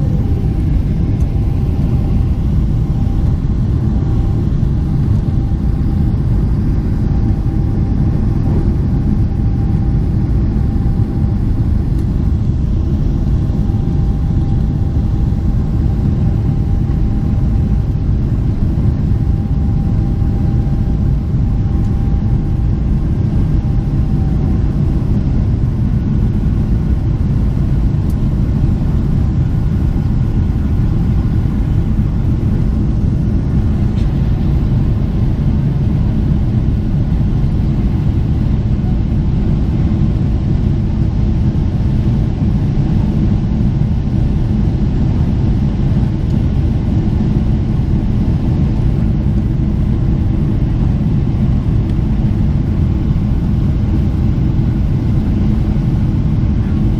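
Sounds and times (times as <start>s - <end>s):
faint high tone: 0.0s - 0.7s
faint steady whine: 0.0s - 56.9s
jet engine cabin rumble: 0.0s - 56.9s.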